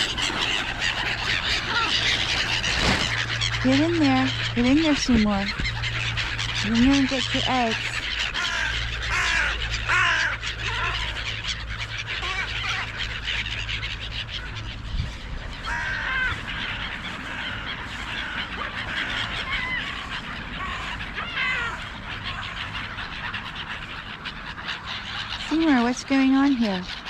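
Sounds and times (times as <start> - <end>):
low steady rumble: 0.0 - 18.8
gulls squawking: 0.0 - 27.0.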